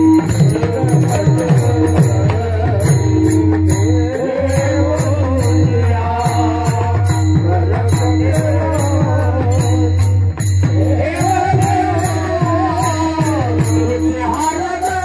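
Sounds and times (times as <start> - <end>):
drum: 0.0 - 15.0
hand cymbals jingling: 0.0 - 15.0
person singing devotional song: 0.0 - 15.0.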